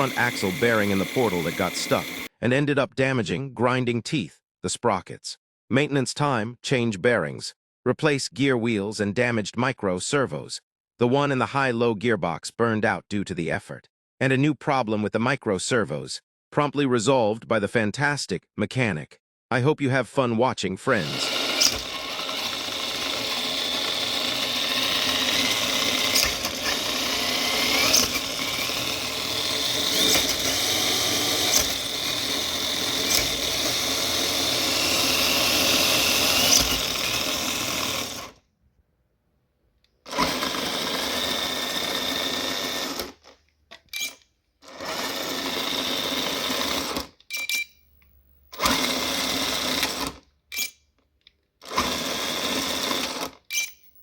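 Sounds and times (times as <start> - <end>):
small electric motor whirring: 0.0 - 2.3, 20.9 - 38.4, 40.1 - 43.3, 44.6 - 47.1, 48.5 - 50.2, 51.7 - 53.9
clicks: 21.1 - 38.3, 47.0 - 48.9.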